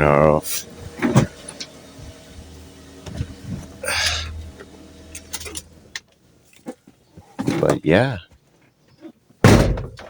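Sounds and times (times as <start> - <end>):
car engine idling: 0.0 - 6.4.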